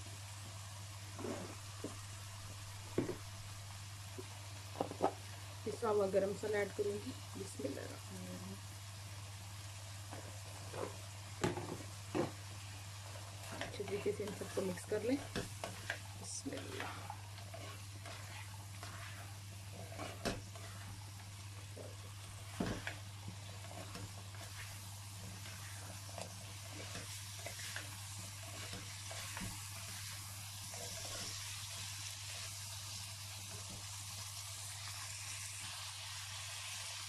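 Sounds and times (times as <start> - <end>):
food sizzling in oil: 0.0 - 37.0
spatula stirring and scraping: 1.1 - 2.0, 10.1 - 34.3.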